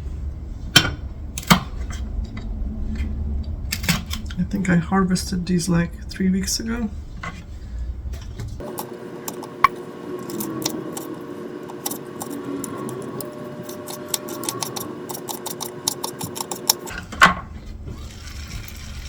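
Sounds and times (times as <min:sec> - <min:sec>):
low steady hum: 0:00.0 - 0:19.0
knife clicking cutting peppers: 0:11.7 - 0:16.9.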